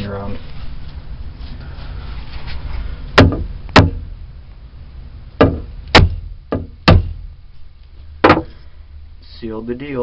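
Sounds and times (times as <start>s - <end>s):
hammer striking staple into wood: 3.2s - 4.0s, 5.4s - 7.2s, 8.2s - 8.5s.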